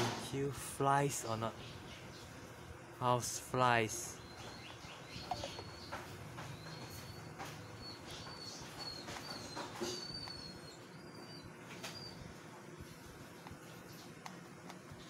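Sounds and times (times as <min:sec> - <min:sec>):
small bird chirping: 0:03.9 - 0:15.0.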